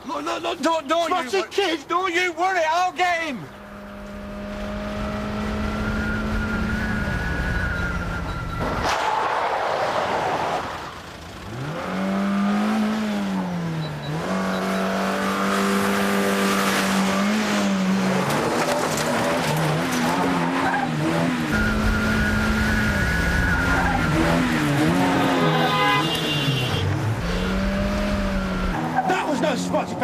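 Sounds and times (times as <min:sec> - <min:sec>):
car engine revving hard: 0:03.8 - 0:07.4, 0:11.4 - 0:26.5, 0:27.1 - 0:29.7
tyres squealing: 0:18.1 - 0:27.7.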